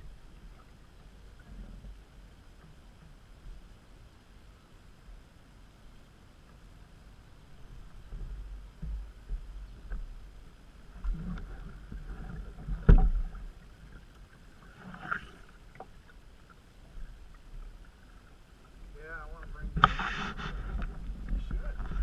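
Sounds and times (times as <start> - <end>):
paddle strokes in water: 6.4 - 22.0
low microphone rumble: 6.6 - 14.1, 16.8 - 22.0.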